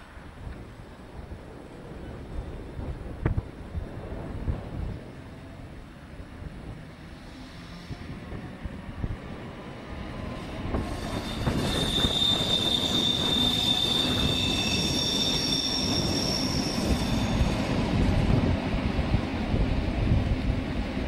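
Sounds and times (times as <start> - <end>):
train wheel rumble: 0.1 - 21.0
high wheel squeal: 10.8 - 17.8.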